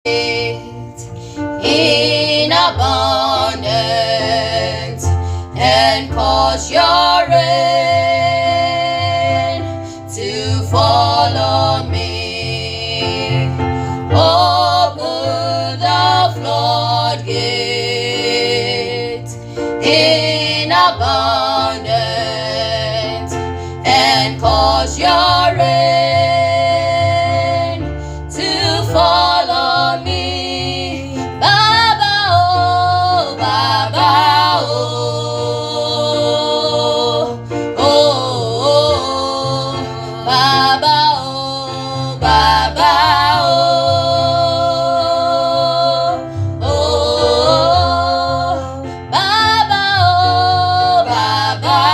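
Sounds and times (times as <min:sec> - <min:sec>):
instrumental backing with bass line: 0:00.1 - 0:51.9.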